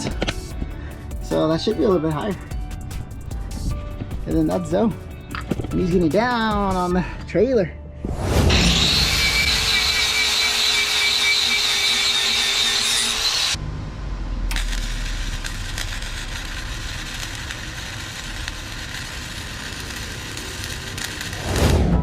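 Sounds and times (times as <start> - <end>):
power tool grinding whine: 8.5 - 13.6, 14.5 - 21.4
low hum: 13.4 - 18.7.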